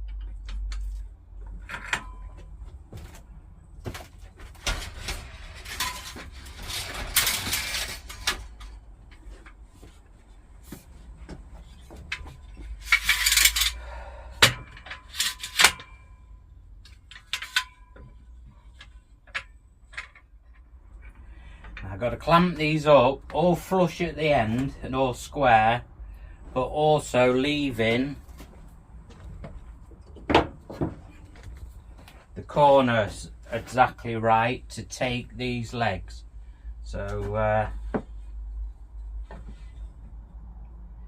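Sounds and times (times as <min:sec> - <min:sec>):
wood and metal clamps knocking: 0:29.4 - 0:31.2.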